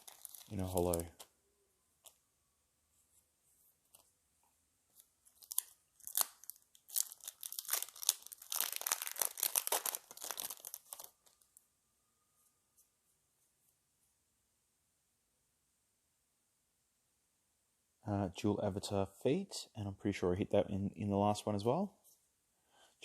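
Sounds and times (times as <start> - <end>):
foil wrapper tearing and crinkling: 0.0 - 1.1, 5.3 - 11.4.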